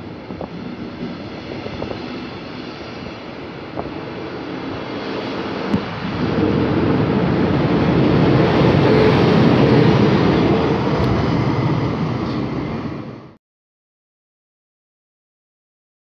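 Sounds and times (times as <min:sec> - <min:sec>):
train wheels rumbling on rail: 0:00.0 - 0:13.4.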